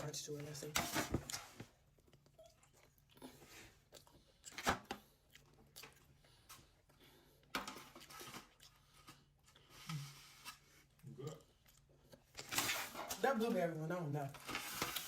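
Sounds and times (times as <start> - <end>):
person chewing pastry: 1.8 - 12.5.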